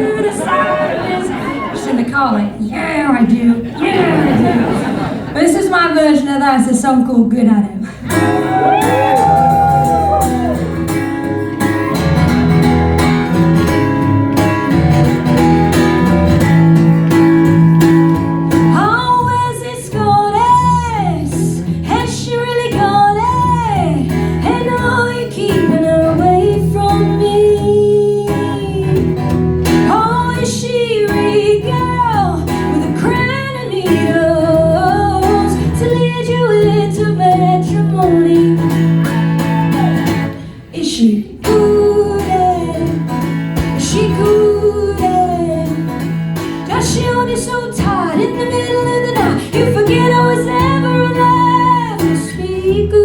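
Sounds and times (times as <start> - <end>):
guitar playing: 8.0 - 40.7, 41.4 - 53.0
woman singing: 18.6 - 40.1, 40.7 - 53.0.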